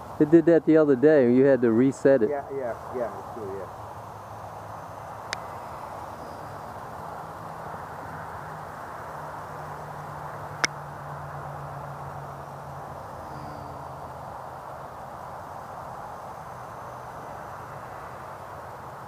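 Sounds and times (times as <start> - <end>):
model aircraft droning: 11.8 - 14.2.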